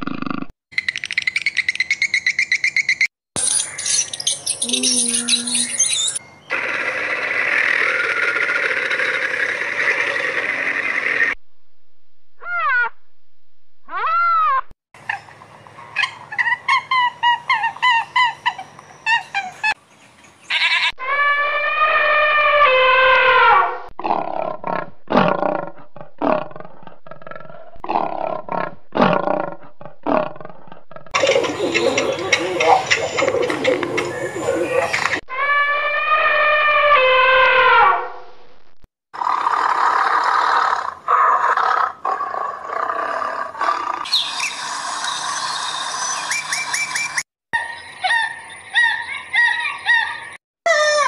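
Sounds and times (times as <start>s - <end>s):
swallows twittering: 0.8s - 6.5s, 31.2s - 35.2s
rising and falling animal calls: 3.9s - 11.4s, 12.4s - 13.0s, 13.9s - 19.8s, 20.5s - 38.2s, 39.2s - 51.0s
tiger roaring: 24.0s - 35.1s
animal clicks and chatter: 31.2s - 35.2s.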